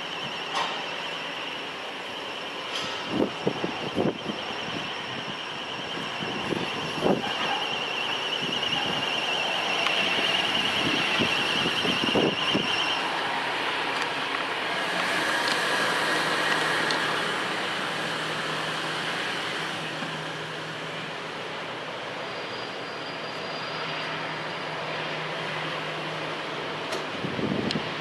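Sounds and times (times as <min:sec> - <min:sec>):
jet engines rushing: 0:00.0 - 0:22.3
high engine whine: 0:00.0 - 0:28.0.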